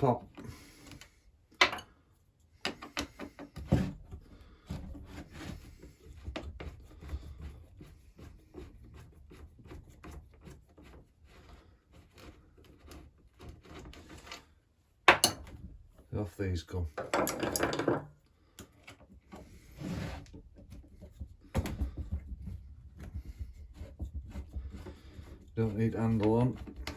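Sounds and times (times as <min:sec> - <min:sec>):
tools clicking and knocking: 0:01.6 - 0:01.9, 0:02.6 - 0:03.6, 0:15.1 - 0:15.6, 0:16.9 - 0:19.0.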